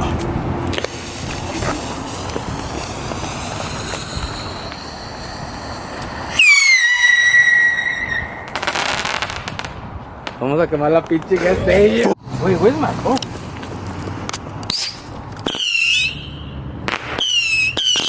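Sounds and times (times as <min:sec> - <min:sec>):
firework crackling: 0:00.6 - 0:10.4, 0:16.9 - 0:18.0
steady hiss: 0:00.7 - 0:06.6
firework whistle: 0:00.8 - 0:09.7, 0:14.7 - 0:16.5, 0:17.1 - 0:18.0.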